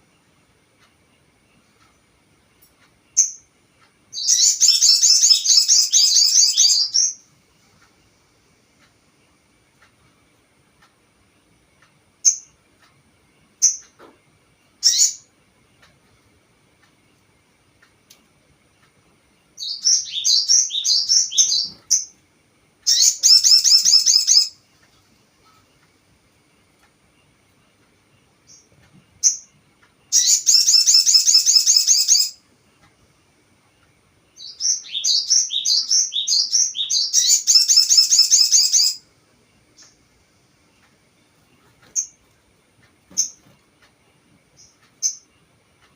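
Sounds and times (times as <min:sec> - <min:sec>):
faint ticking bird calls: 0:00.0 - 0:45.9
bird chirping: 0:02.6 - 0:03.5, 0:04.1 - 0:08.2, 0:12.2 - 0:12.6, 0:13.4 - 0:14.0, 0:14.7 - 0:15.9, 0:19.6 - 0:22.2, 0:22.8 - 0:25.9, 0:26.5 - 0:32.9, 0:33.7 - 0:40.0, 0:40.7 - 0:42.4, 0:43.1 - 0:45.5
bird rapid high chirping: 0:04.1 - 0:07.2, 0:14.8 - 0:15.3, 0:19.6 - 0:22.2, 0:22.9 - 0:24.6, 0:30.1 - 0:32.4, 0:34.4 - 0:39.0.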